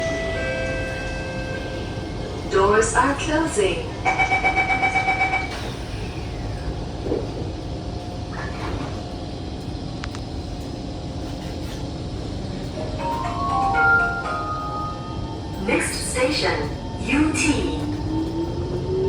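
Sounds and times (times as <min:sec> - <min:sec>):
train doors shutting: 0:00.0 - 0:09.2, 0:11.2 - 0:19.0
train cabin rumble: 0:00.0 - 0:19.0
door warning beeps: 0:04.0 - 0:05.7.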